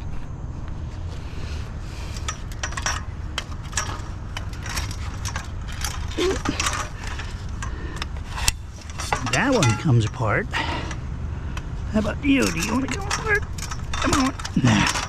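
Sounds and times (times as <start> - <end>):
metal scrap clinking: 2.1 - 11.0, 12.3 - 15.0.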